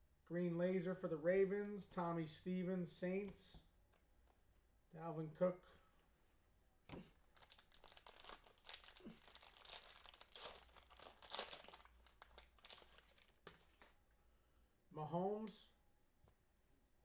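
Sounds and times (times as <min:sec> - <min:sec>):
cellophane wrapper crinkling and tearing: 0:07.1 - 0:14.0.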